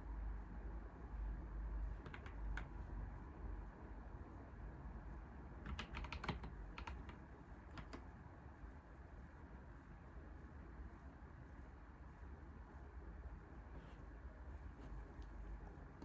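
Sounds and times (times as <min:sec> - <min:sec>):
keyboard typing: 0:02.0 - 0:02.8, 0:05.6 - 0:08.0.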